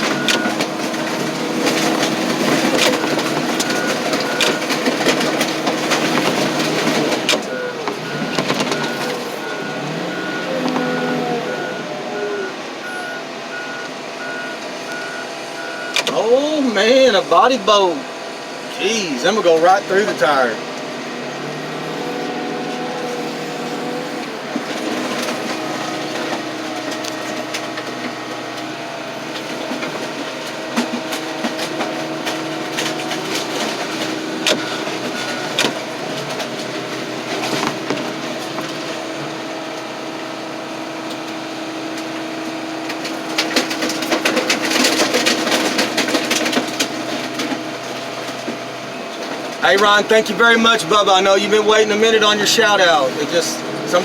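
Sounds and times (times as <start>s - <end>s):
metal cracking and snapping: 0.0s - 9.2s, 24.6s - 39.0s, 42.8s - 50.0s
metal crunching: 0.0s - 13.1s, 18.8s - 54.0s
heavy machine running: 0.0s - 54.0s.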